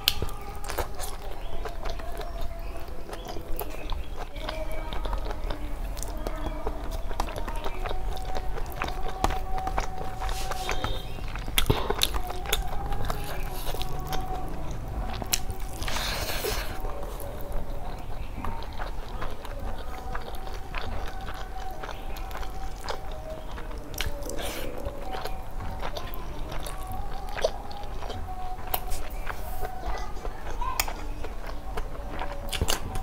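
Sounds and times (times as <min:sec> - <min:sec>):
person chewing: 0:00.0 - 0:33.0.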